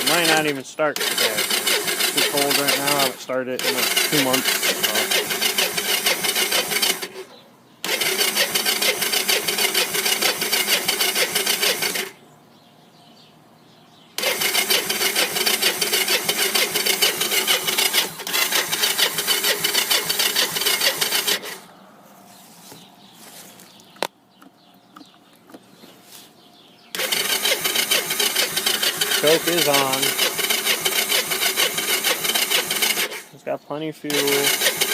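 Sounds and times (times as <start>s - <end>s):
electric starter cranking engine: 0.0s - 12.2s, 14.2s - 21.8s, 26.9s - 33.4s, 34.0s - 34.9s.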